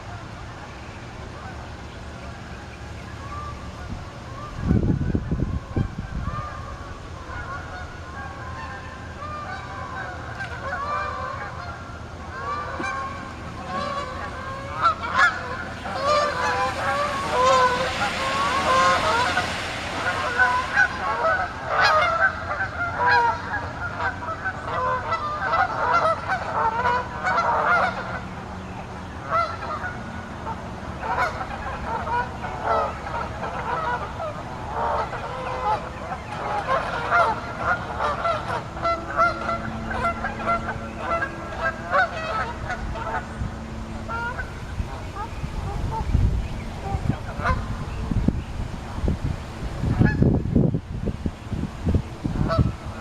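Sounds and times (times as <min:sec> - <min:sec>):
geese honking: 0:03.0 - 0:28.4, 0:29.0 - 0:48.3, 0:49.8 - 0:50.4, 0:52.3 - 0:53.0
rushing noise: 0:12.1 - 0:23.9.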